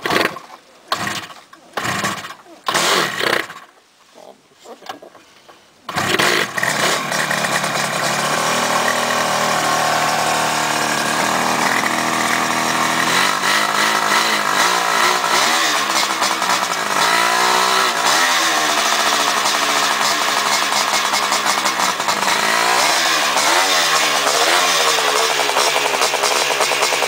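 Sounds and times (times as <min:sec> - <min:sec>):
two-stroke engine starting and revving: 0:00.0 - 0:03.7, 0:05.9 - 0:27.0.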